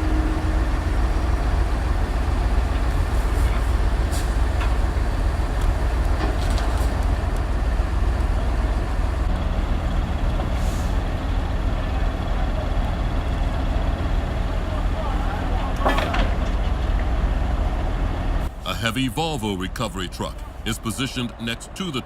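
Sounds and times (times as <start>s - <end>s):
diesel truck engine rumbling: 0.0s - 22.0s.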